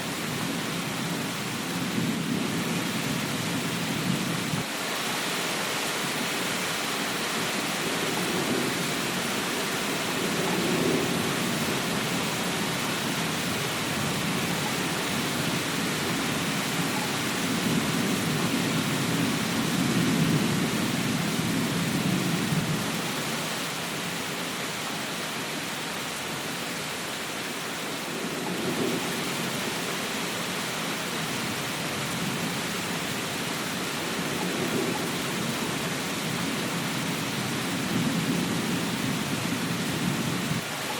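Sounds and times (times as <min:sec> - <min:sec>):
heavy rain: 0:00.0 - 0:40.9
thunder rumbling: 0:07.6 - 0:23.1.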